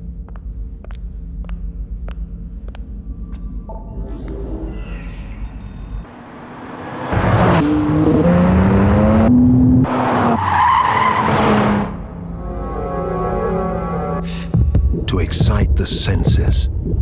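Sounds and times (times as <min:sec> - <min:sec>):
car engine revving hard: 0:06.1 - 0:10.4
low electronic drone: 0:11.8 - 0:15.1.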